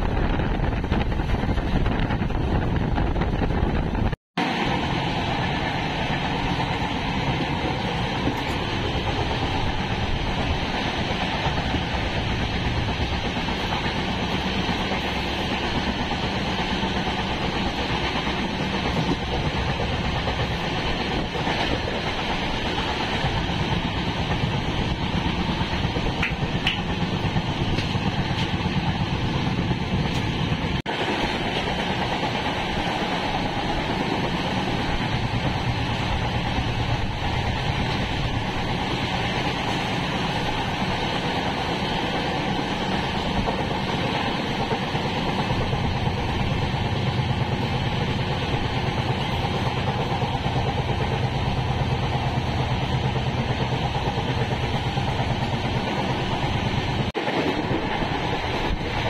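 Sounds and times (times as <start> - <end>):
train coach rumble and rattle: 0.0 - 59.0.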